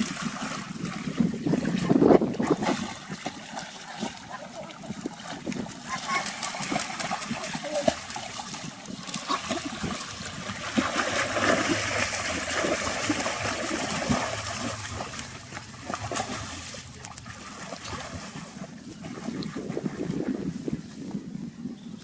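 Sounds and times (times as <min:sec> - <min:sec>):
water splashing and trickling: 0:00.0 - 0:21.2.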